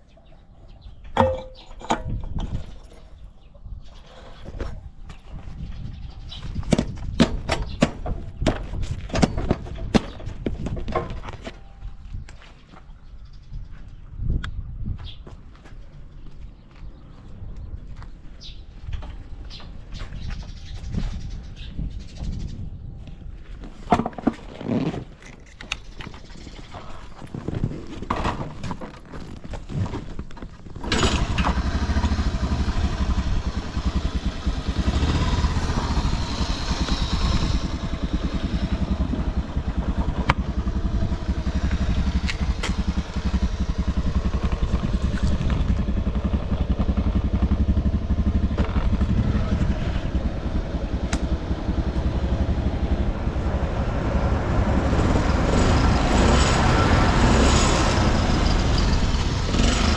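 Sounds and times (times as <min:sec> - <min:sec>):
small engine starting and idling: 0:30.8 - 0:59.9.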